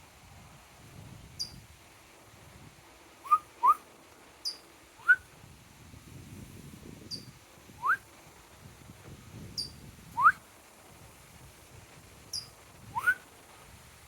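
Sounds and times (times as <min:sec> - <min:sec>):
small bird chirping: 0:01.4 - 0:01.6, 0:04.4 - 0:04.7, 0:07.1 - 0:07.4, 0:09.6 - 0:09.8, 0:12.3 - 0:13.2
person whistling: 0:10.2 - 0:10.4, 0:13.0 - 0:13.2.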